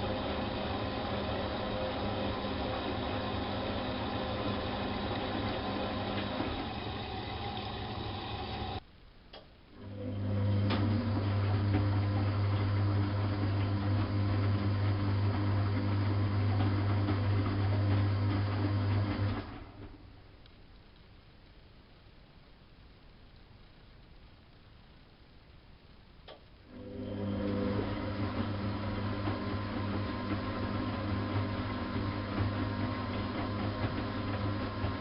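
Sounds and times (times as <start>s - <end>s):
washing machine drum motor running: 0.0s - 8.8s, 9.8s - 20.0s, 26.7s - 35.0s.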